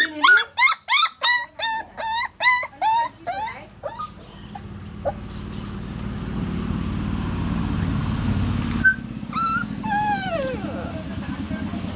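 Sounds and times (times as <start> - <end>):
puppy whimpering: 0.0 - 5.3, 8.8 - 11.1.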